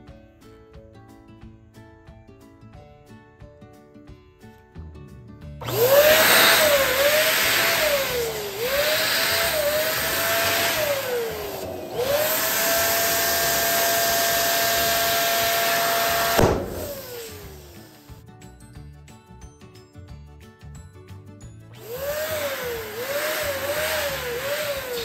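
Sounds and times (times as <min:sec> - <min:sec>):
balloon pump motor running: 0:05.6 - 0:18.2, 0:21.8 - 0:25.0
sharp snap: 0:16.3 - 0:17.4.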